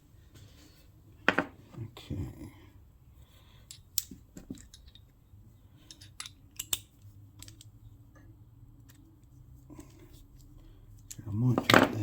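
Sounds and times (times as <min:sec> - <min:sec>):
metal parts and tools clinking: 0:03.6 - 0:05.2, 0:05.8 - 0:07.8.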